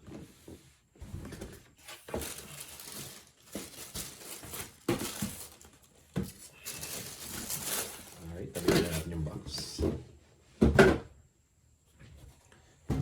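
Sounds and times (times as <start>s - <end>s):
paper rustling and crinkling: 1.1s - 9.2s.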